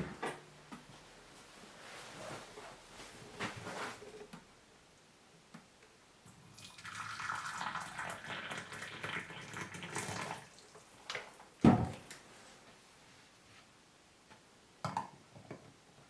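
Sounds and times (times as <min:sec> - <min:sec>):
water pouring into cup: 0:06.4 - 0:10.8.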